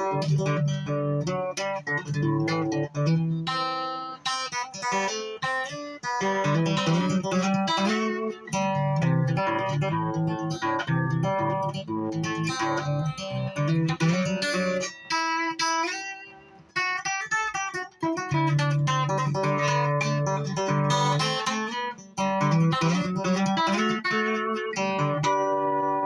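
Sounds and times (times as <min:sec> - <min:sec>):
guitar playing: 0:00.0 - 0:26.0.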